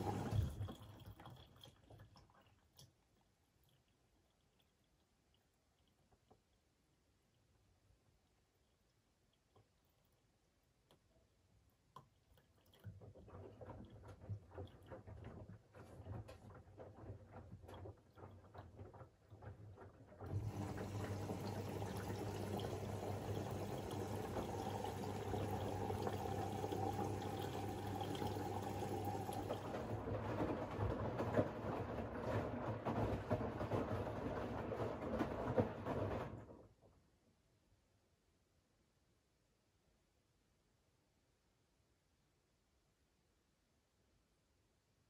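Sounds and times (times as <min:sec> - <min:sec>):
water rushing in washing machine: 0:00.0 - 0:04.6, 0:12.4 - 0:36.8.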